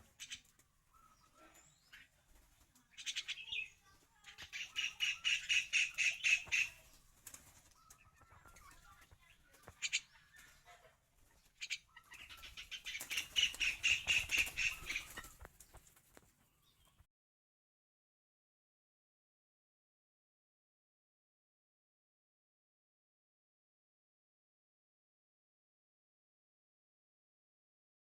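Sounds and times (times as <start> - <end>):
bird rapid pulsing calls: 2.9 - 7.1, 11.6 - 15.8
bird sharp chirps: 3.0 - 7.0, 11.6 - 15.8.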